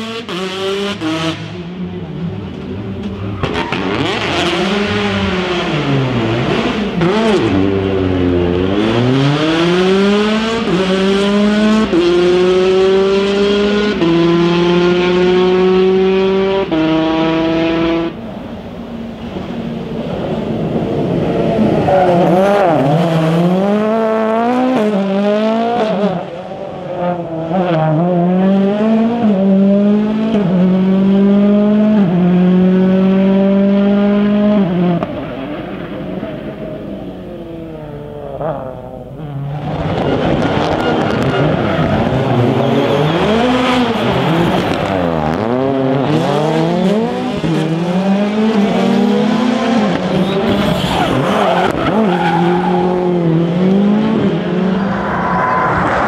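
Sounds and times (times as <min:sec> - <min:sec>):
rally car engine accelerating: 0:00.0 - 0:18.2, 0:19.2 - 0:56.0.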